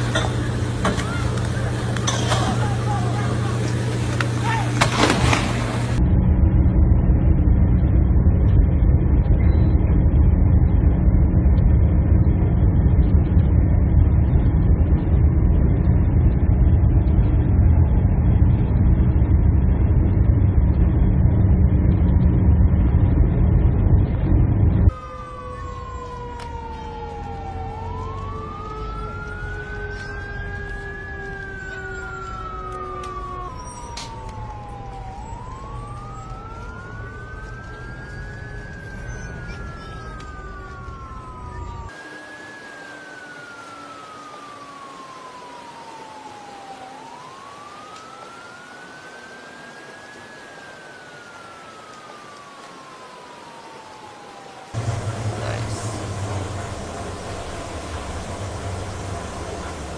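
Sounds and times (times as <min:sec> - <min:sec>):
loud low rumbling: 0:00.0 - 0:42.0, 0:54.7 - 0:59.9
wailing sirens: 0:00.0 - 0:59.9.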